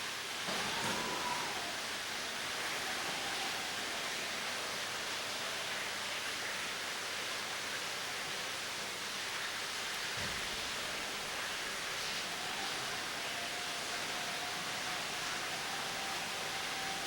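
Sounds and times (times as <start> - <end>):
faint tone sliding down: 0.5 - 4.8.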